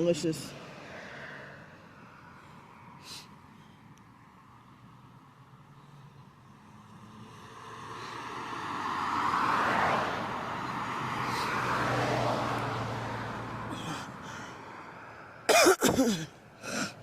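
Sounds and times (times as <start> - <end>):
vehicle passing by: 0.0 - 3.3, 4.2 - 15.4
person coughing: 15.5 - 16.3.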